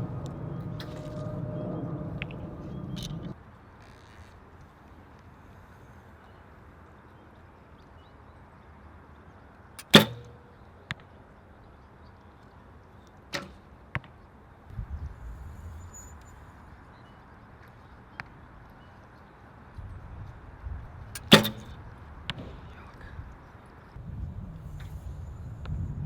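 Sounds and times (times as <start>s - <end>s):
wind rumble on microphone: 0.0s - 3.4s, 14.7s - 16.8s, 19.7s - 26.0s
arrow striking target: 9.8s - 10.4s, 13.3s - 13.6s, 21.2s - 22.8s
bow string release crack: 9.8s - 10.4s, 21.2s - 21.7s
short clicks: 9.8s - 10.5s, 21.2s - 21.7s.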